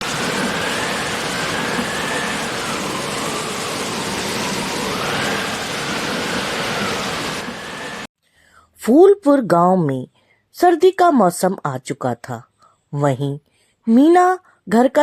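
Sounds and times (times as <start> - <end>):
steady rain hiss: 0.0 - 8.1
faint whistling tone: 0.3 - 8.1.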